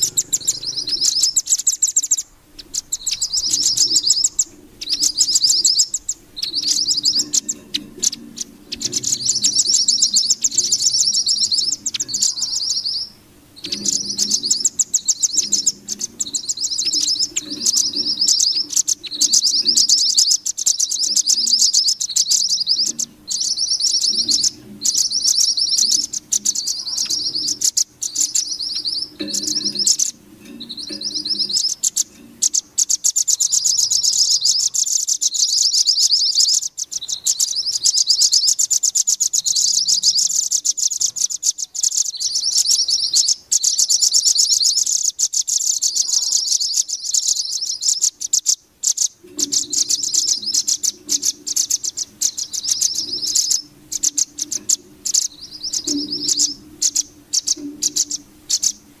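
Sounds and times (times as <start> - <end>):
faint low hum: 0.0 - 43.6
high-pitched chirping bird trills: 0.0 - 59.0.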